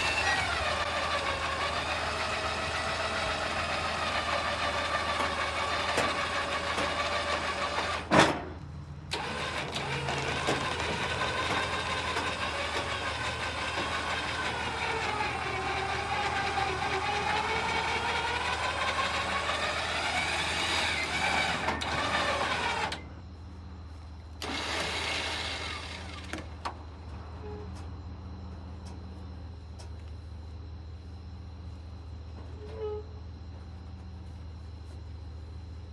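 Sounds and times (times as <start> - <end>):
winch motor whining: 0.0 - 23.1, 24.4 - 26.8
engine idling: 0.0 - 27.2.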